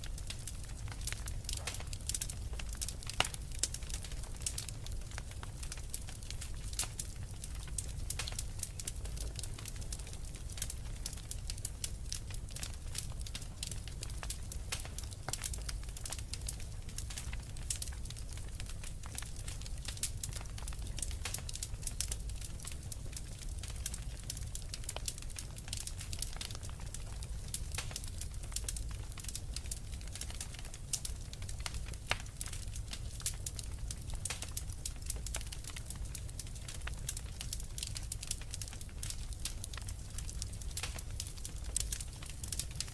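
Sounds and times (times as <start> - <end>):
fire low rumble: 0.0 - 42.9
wood fire crackling: 0.0 - 42.9.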